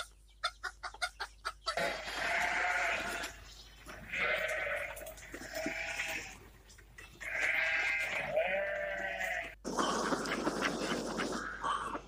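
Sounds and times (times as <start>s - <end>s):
bleating: 1.7s - 6.4s, 7.2s - 9.6s.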